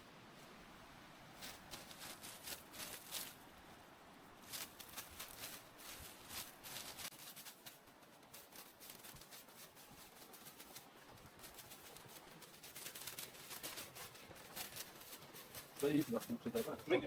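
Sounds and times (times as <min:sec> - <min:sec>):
faint rustling with clicks: 0:04.4 - 0:17.0.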